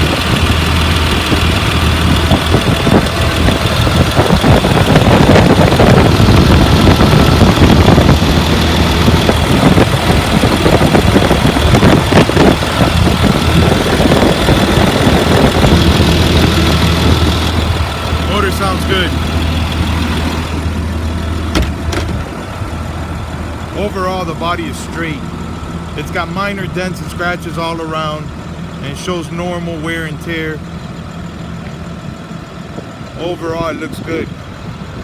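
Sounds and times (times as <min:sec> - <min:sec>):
diesel bus engine idling: 0:00.0 - 0:35.0.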